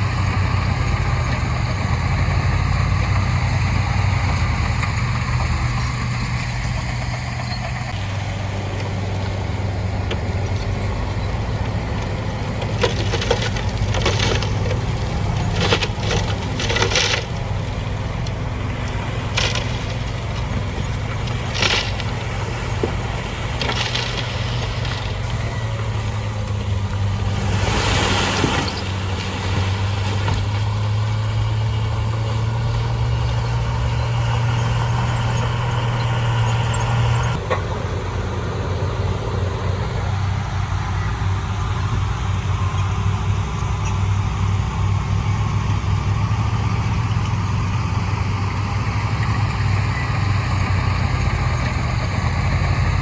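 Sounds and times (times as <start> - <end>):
rock and gravel grinding: 0.0 - 37.5, 41.0 - 53.0
diesel earthmoving machine running: 0.0 - 53.0.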